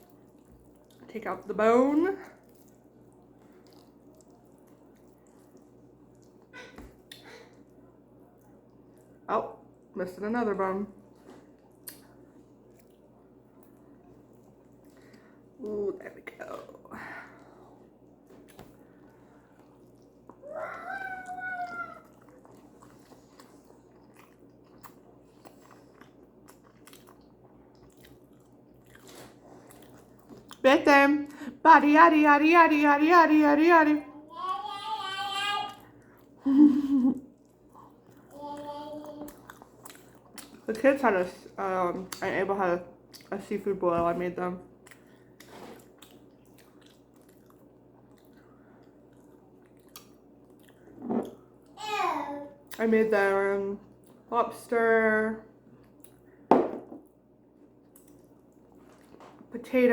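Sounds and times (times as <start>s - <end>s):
chewing and biting food: 0.0s - 1.1s, 2.2s - 9.9s, 22.0s - 30.6s, 39.3s - 40.7s, 44.8s - 51.8s, 57.8s - 59.2s.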